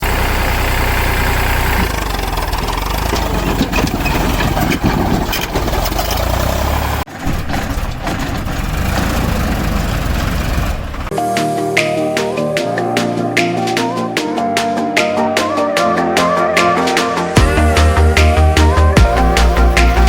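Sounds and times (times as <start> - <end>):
tractor diesel engine running: 0.0 - 11.2, 17.2 - 20.0.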